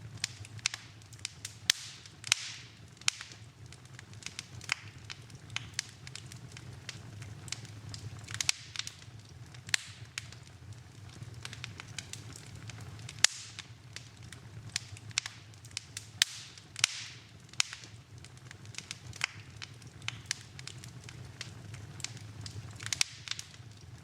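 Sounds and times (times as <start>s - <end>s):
low steady rumble: 0.0s - 24.0s
wood fire crackling: 0.0s - 24.0s.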